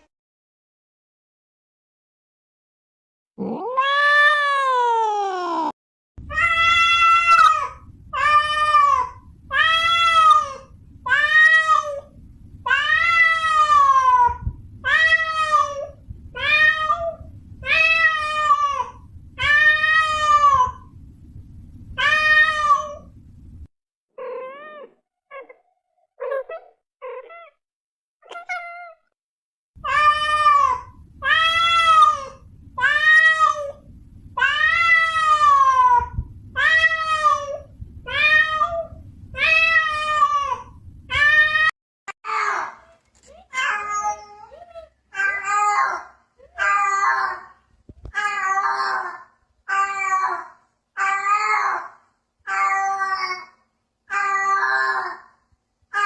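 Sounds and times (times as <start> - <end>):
cat meowing: 3.4 - 5.4, 24.2 - 25.6
low background rumble: 6.2 - 23.7, 29.8 - 41.7.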